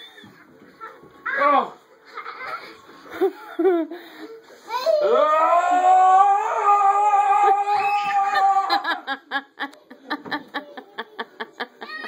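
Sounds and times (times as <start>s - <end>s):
child giggling: 2.1s - 3.9s, 10.6s - 12.0s
child squealing: 7.6s - 8.5s.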